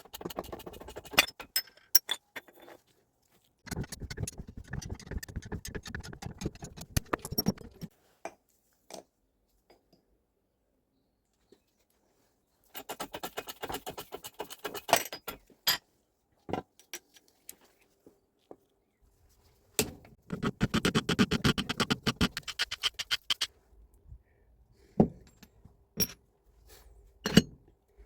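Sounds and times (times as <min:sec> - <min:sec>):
metal parts clicking and rattling: 0:03.7 - 0:07.9, 0:20.3 - 0:23.5.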